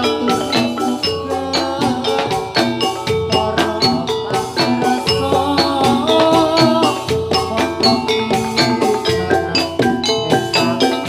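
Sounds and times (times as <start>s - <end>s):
drum strokes: 0.0s - 11.0s
metallophones struck: 0.0s - 11.0s.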